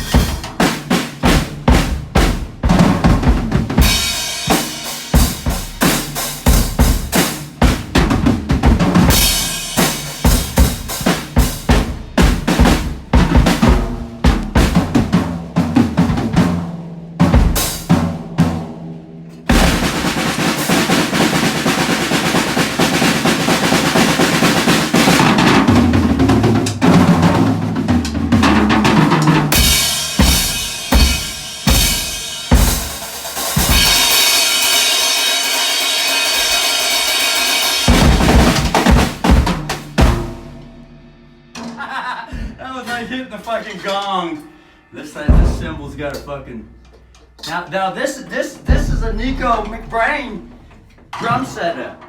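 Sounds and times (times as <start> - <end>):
crashing cymbals: 0.0 - 0.9, 3.8 - 6.9, 9.1 - 11.8, 29.5 - 39.2
drum hits: 0.0 - 42.6, 45.2 - 47.4, 48.5 - 51.7
drum rolls: 0.0 - 44.2, 45.0 - 52.0.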